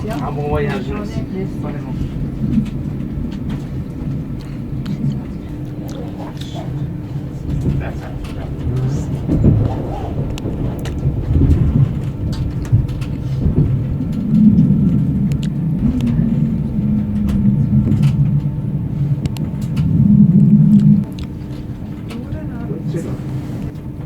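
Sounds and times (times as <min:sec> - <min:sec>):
electric train rumble and hum: 0:00.0 - 0:24.0
clicks and rattles: 0:07.4 - 0:18.6.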